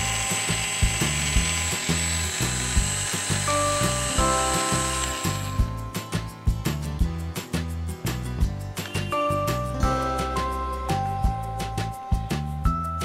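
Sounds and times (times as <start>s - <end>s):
toy drill whirring: 0.0s - 5.8s
background music with steady beat: 0.0s - 13.0s.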